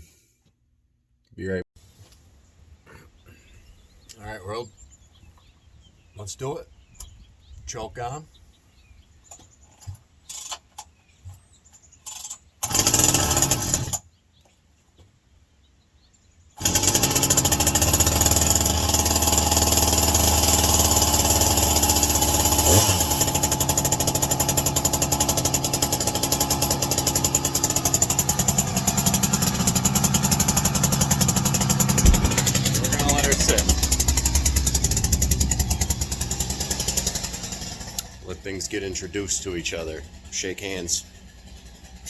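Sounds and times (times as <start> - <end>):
chainsaw starting and running: 12.6 - 14.0, 16.6 - 42.0.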